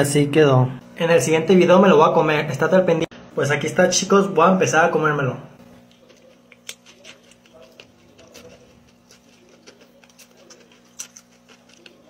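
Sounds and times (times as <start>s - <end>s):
person chewing crunchy snacks: 5.8s - 12.0s.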